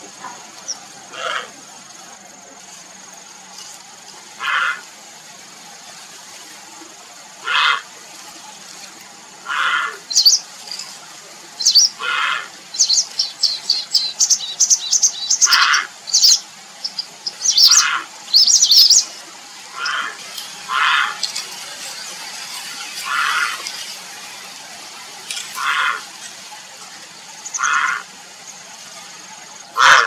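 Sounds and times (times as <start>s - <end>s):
heron giving harsh calls: 4.4s - 4.8s, 7.4s - 7.8s, 9.5s - 10.4s, 11.6s - 19.1s, 19.7s - 21.2s, 25.6s - 26.1s, 27.5s - 28.1s, 29.8s - 30.0s
bird chirping rapidly: 10.1s - 10.4s, 11.6s - 12.0s, 12.7s - 19.2s, 27.4s - 28.0s.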